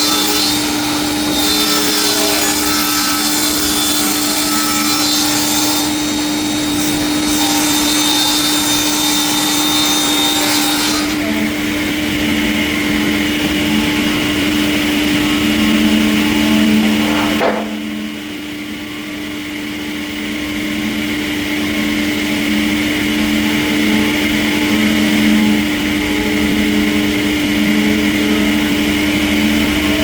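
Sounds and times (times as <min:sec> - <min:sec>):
sawmill machinery sawing wood: 0:00.0 - 0:18.4, 0:20.9 - 0:30.0.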